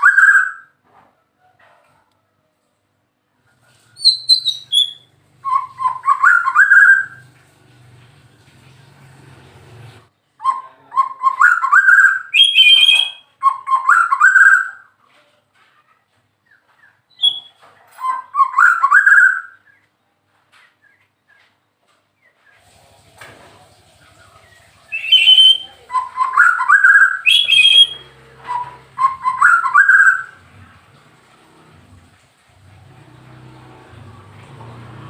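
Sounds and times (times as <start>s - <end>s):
bird singing rising whistled phrases: 4.0s - 7.2s, 10.4s - 14.8s, 17.1s - 19.8s, 24.9s - 30.4s.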